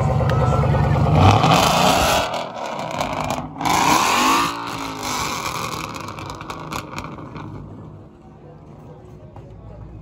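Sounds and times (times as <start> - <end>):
car engine revving: 0.0 - 7.9.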